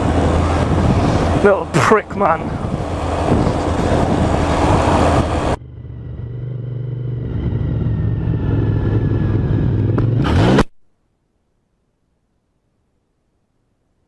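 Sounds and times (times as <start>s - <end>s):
wind noise: 0.0s - 5.6s
motorcycle engine: 0.0s - 10.7s.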